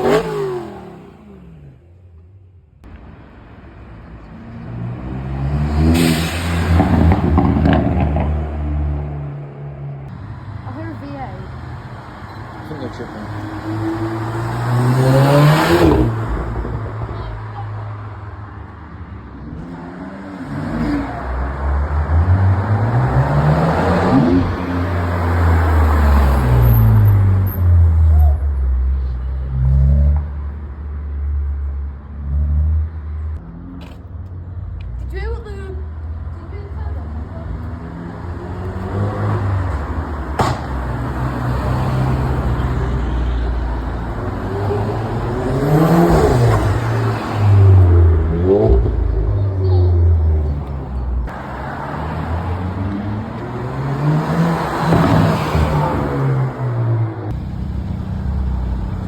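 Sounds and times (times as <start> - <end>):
car engine revving: 0.0 - 2.0, 12.6 - 17.2, 36.4 - 59.0
sharp crack: 40.3 - 41.0.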